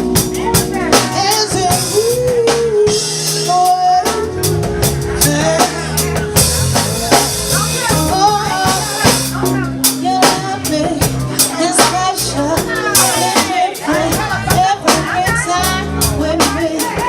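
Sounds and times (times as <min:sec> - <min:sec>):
bass notes: 0:00.0 - 0:17.0
drum kit beat: 0:00.0 - 0:17.0
person singing long sliding notes: 0:00.4 - 0:06.4.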